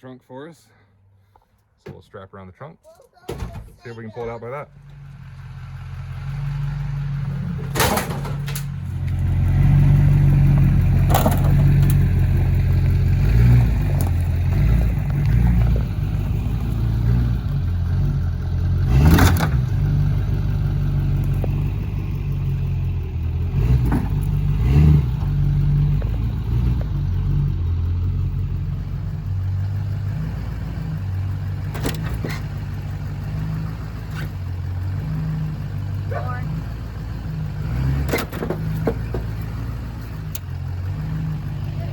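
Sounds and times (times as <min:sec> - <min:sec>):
diesel pickup engine under load: 0:03.4 - 0:41.9
metallic clanks and bangs: 0:07.4 - 0:09.0, 0:11.0 - 0:12.0.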